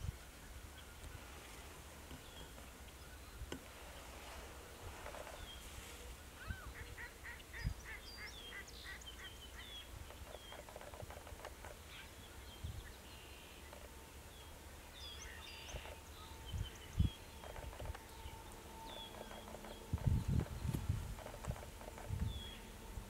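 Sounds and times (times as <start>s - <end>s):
low wind rumble: 0.0s - 23.0s
wild birds calling: 0.4s - 23.0s.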